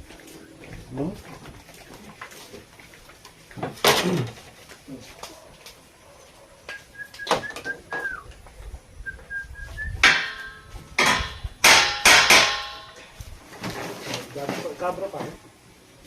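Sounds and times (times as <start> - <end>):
metal clanks ringing: 10.0 - 13.2.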